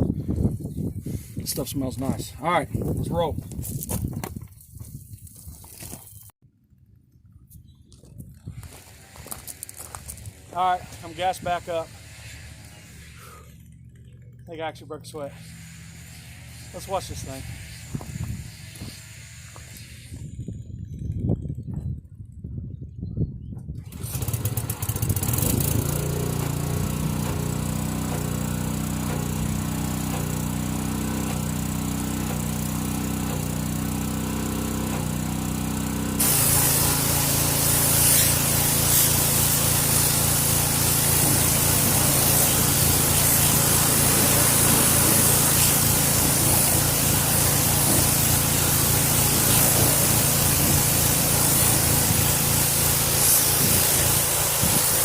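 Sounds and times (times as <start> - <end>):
water spray hissing: 8.6 - 13.5, 15.2 - 20.2, 24.0 - 55.0
pressure washer engine running: 8.6 - 20.6, 23.8 - 55.0.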